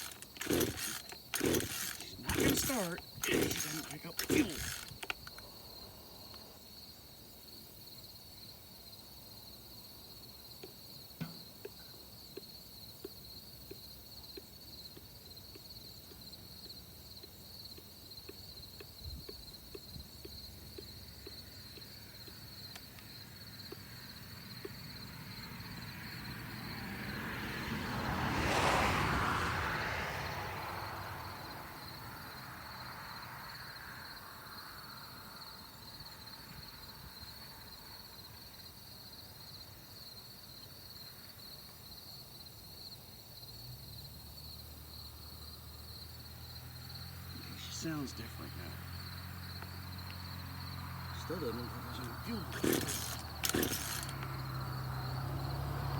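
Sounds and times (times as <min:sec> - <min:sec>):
vehicle passing by: 0:25.6 - 0:31.8, 0:48.4 - 0:55.9.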